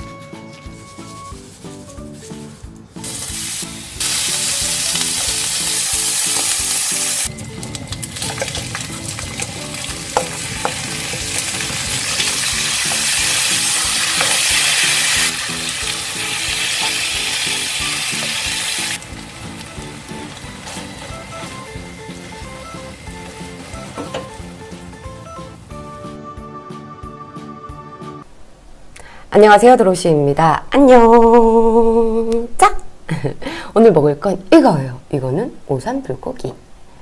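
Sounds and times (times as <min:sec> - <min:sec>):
background music: 0:00.0 - 0:28.3
food sizzling in frying pan: 0:03.0 - 0:25.8
wooden spatula stirring: 0:07.9 - 0:15.0.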